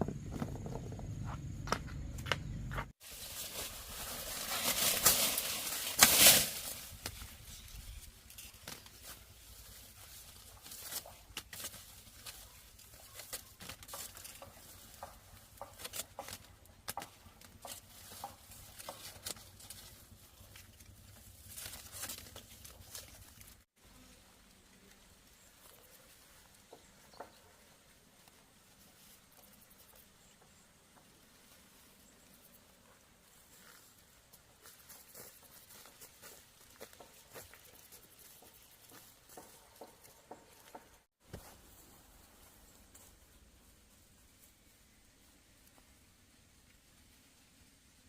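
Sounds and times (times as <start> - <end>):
dry material rustling and crackling: 2.9 - 23.8.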